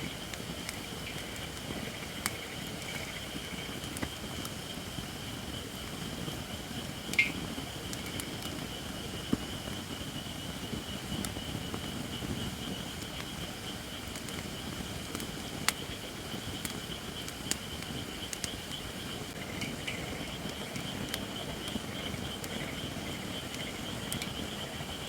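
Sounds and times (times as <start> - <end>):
wood fire crackling: 0.0 - 25.0
fire sharp pops: 7.0 - 9.8, 10.8 - 24.6.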